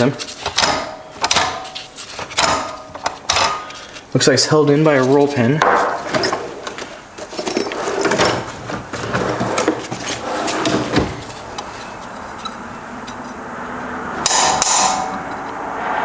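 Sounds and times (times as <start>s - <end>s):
hand tools clicking on metal: 0.2s - 4.1s.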